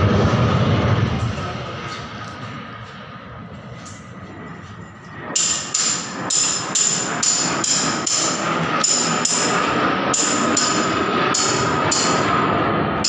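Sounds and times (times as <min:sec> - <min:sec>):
hammering on metal: 0:05.4 - 0:12.4.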